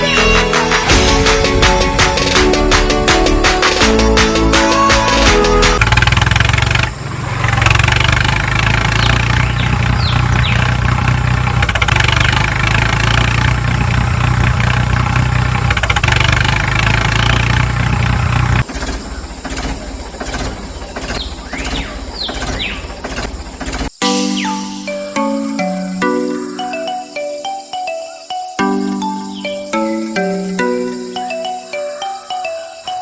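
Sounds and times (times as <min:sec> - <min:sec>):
short high chirps: 0:24.0 - 0:31.8.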